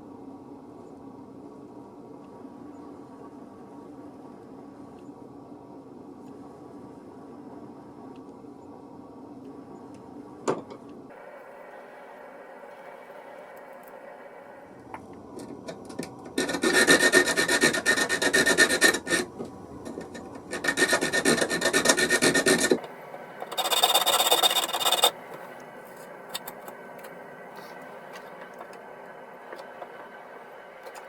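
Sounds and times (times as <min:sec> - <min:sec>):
file rasping on workpiece: 0:16.4 - 0:22.8, 0:23.4 - 0:25.2.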